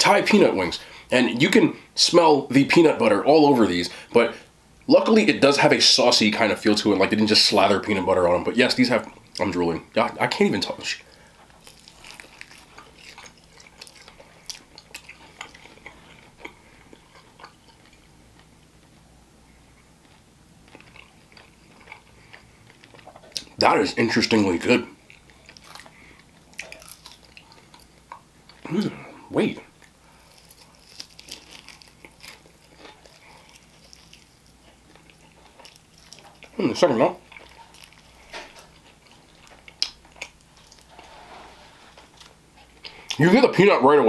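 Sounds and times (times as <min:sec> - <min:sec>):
man chewing with wet smacks: 0:11.0 - 0:23.6, 0:24.9 - 0:29.0, 0:29.7 - 0:40.9, 0:42.1 - 0:43.2.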